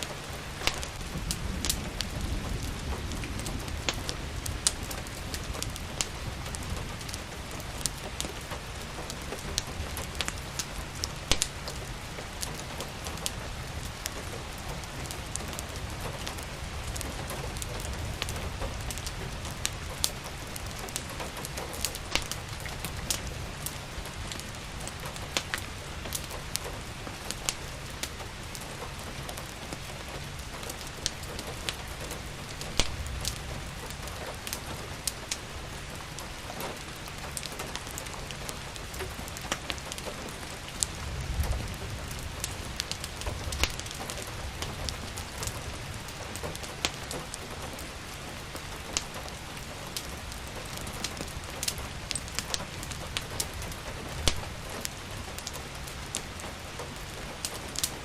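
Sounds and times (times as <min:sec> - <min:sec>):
steady rain: 0:00.0 - 0:58.0
wood fire crackling: 0:00.0 - 0:58.0.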